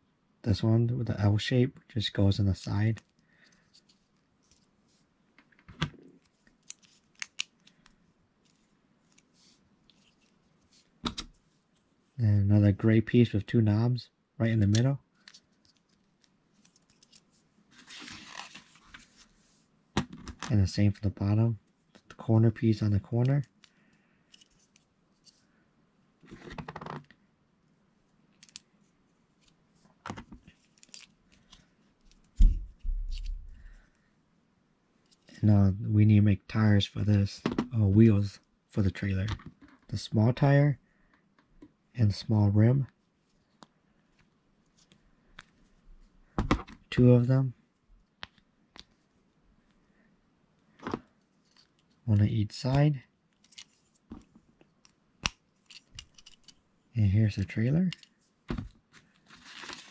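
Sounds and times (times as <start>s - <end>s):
plastic pieces rustling: 59.2s - 59.9s.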